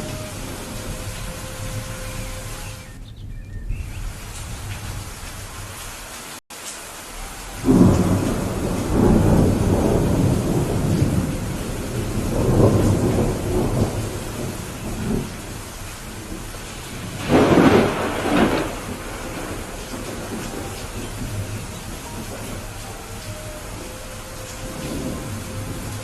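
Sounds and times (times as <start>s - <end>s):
steady rain: 0.0s - 26.0s
thunder rolling: 7.2s - 26.0s.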